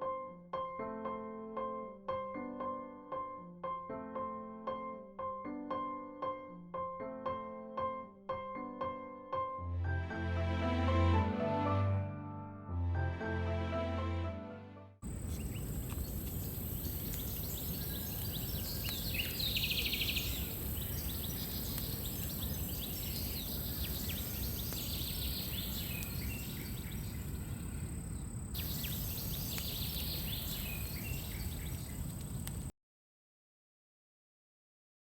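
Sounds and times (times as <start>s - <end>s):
high chirps: 28.6s - 32.2s.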